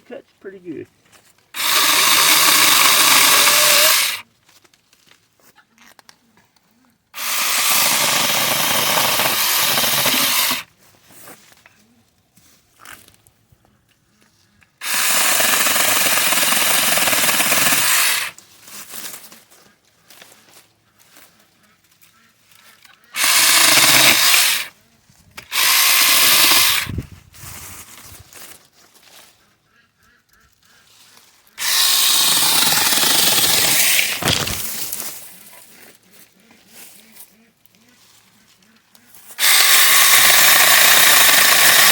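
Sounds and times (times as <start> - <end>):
chainsaw cutting branch: 1.6 - 4.2, 7.2 - 10.7, 14.8 - 18.4, 23.2 - 24.7, 25.4 - 27.0, 31.6 - 35.3, 39.4 - 41.9.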